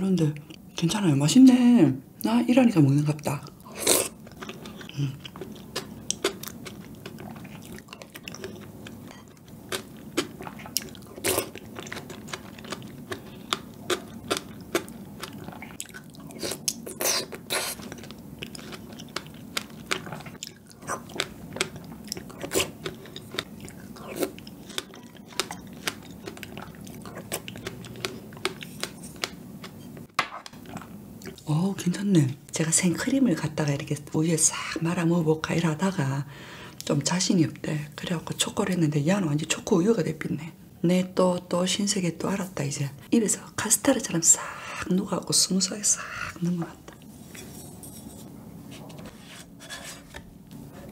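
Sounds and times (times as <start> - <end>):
chewing and mouth sounds: 3.4 - 31.5.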